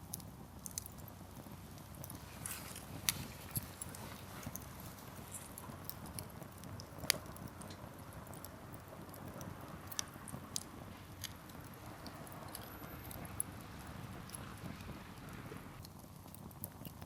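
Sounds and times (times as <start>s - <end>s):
campfire flame rushing: 0.0s - 17.0s
firewood crackling and popping: 0.0s - 17.0s.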